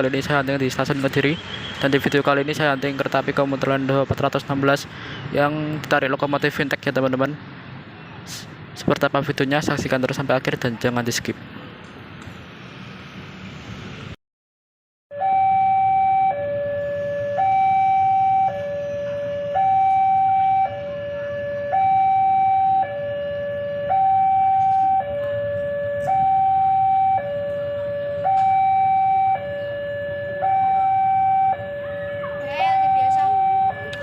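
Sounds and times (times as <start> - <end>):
two-tone siren: 15.1 - 34.0.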